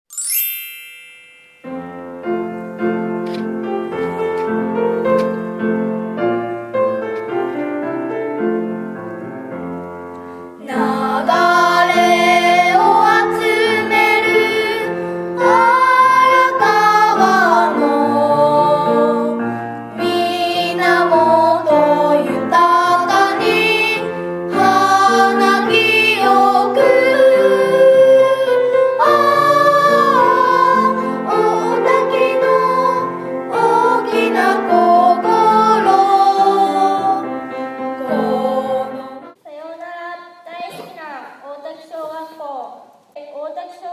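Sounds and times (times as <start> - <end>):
piano: 0.1 - 39.4
voices singing: 10.6 - 39.4.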